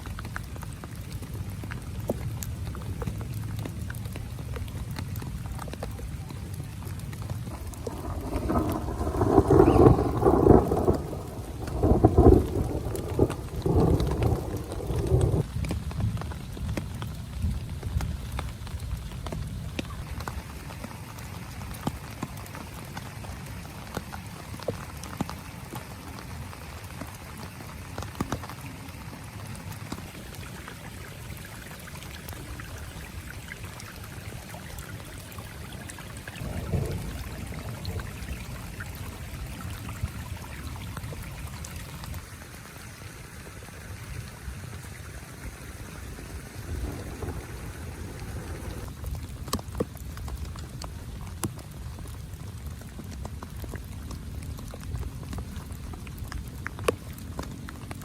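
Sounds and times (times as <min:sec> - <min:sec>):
heavy rain on a tent: 0:00.0 - 0:58.0
low rumble: 0:07.4 - 0:15.4, 0:46.0 - 0:48.9.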